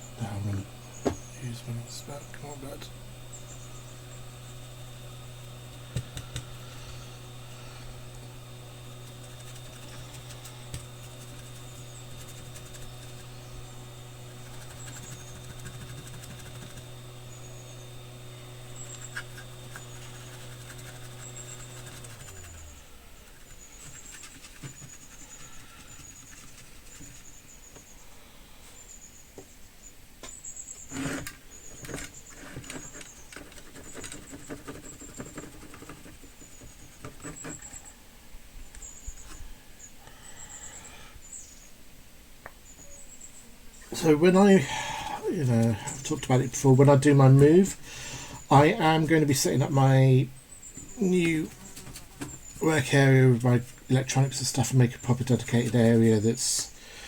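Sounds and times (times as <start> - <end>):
small fan motor humming: 0.0 - 57.0
clicks and scrapes: 30.9 - 37.8.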